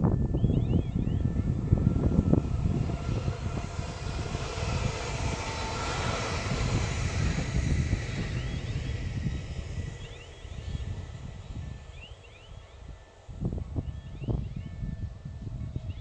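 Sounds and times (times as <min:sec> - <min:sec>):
faint motor whine: 0:00.0 - 0:16.0
train wheels rushing on rail: 0:01.3 - 0:13.3.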